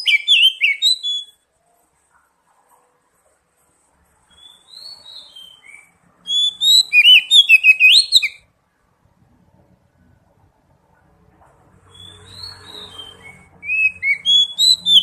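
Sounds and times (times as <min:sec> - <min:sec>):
songbird whistling: 0:00.0 - 0:01.4, 0:04.3 - 0:08.4, 0:11.9 - 0:15.0.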